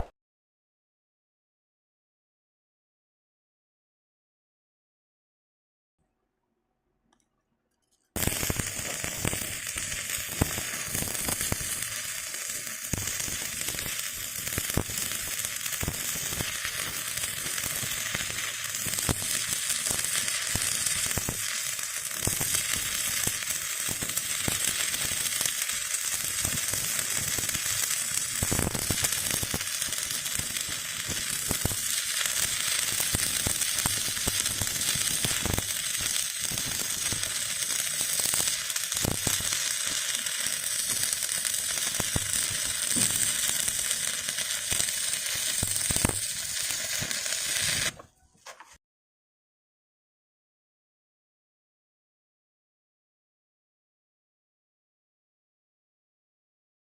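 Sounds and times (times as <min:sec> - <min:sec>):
welding arc crackling and sizzling: 0:08.2 - 0:48.0.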